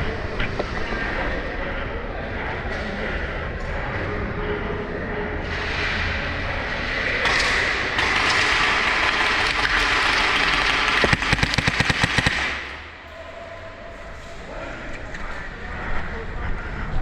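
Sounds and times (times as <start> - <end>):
rapid airsoft gunfire: 7.2 - 13.0.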